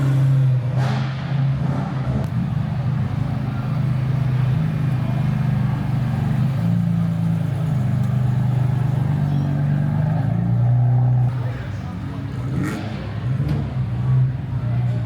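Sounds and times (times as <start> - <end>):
car engine running: 2.3 - 15.0.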